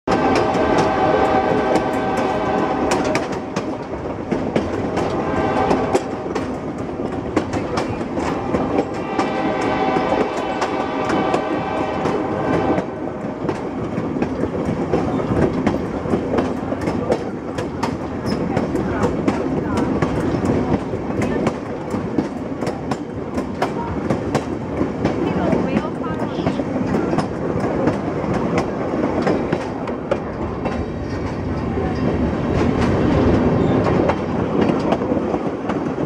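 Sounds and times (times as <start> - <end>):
train horn blasts: 0.1 - 3.6, 4.9 - 6.4, 8.3 - 13.2
train wheels clicking over rail joints: 0.1 - 36.0.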